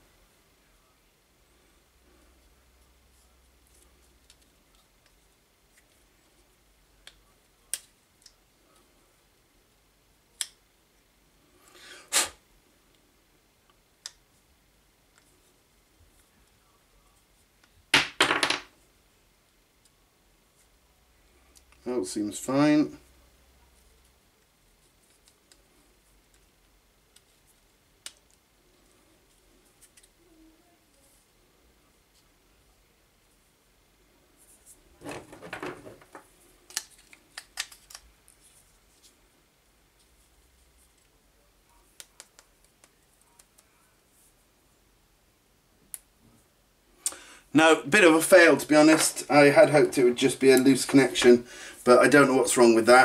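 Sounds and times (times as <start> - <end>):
faint clicks and taps: 40.8 - 43.7.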